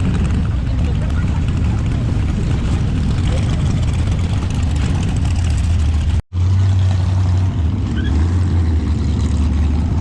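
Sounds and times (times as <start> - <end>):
wind noise: 0.0 - 6.2.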